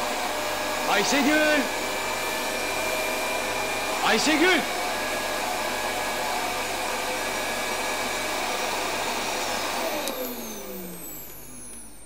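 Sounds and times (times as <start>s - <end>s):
vacuum cleaner running: 0.0s - 12.0s
vacuum switch click: 9.9s - 10.4s.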